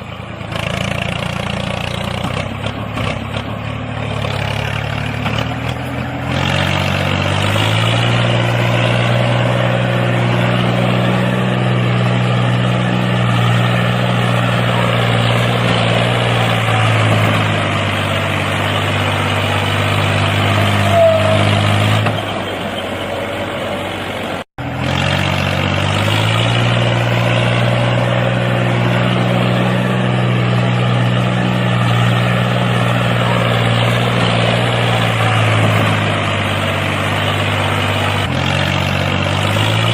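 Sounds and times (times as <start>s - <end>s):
mini tractor engine running: 24.6s - 39.9s.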